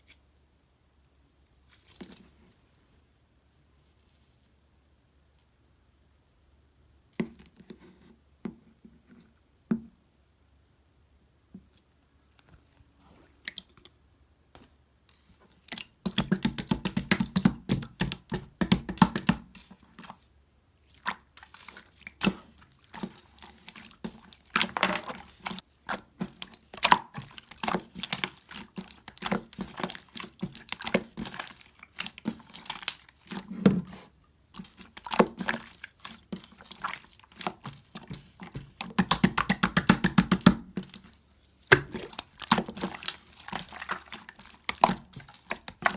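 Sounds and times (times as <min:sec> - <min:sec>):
slime squished by hand: 0:20.9 - 0:45.9.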